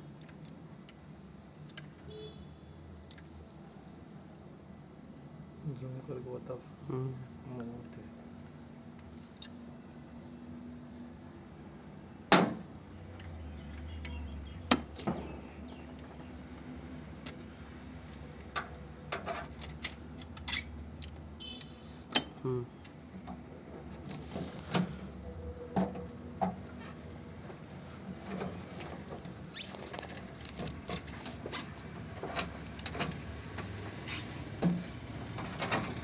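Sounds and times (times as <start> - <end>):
metal tool clinks and knocks: 14.0 - 14.3.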